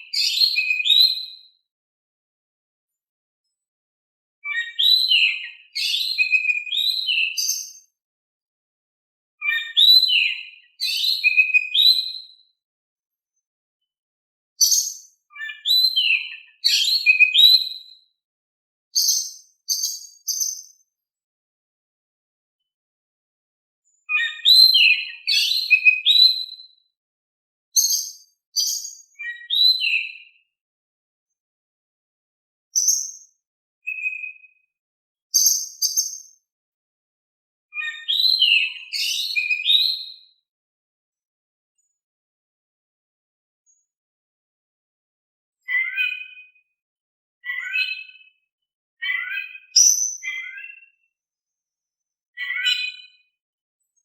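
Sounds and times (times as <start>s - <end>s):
magpie-robin singing: 0.0s - 1.5s, 4.4s - 7.9s, 9.4s - 12.4s, 14.6s - 18.0s, 19.0s - 20.8s, 23.9s - 26.8s, 27.8s - 30.4s, 32.7s - 33.3s, 33.9s - 34.6s, 35.3s - 36.4s, 37.7s - 40.3s, 45.6s - 46.6s, 47.4s - 48.4s, 49.0s - 51.0s, 52.4s - 53.3s.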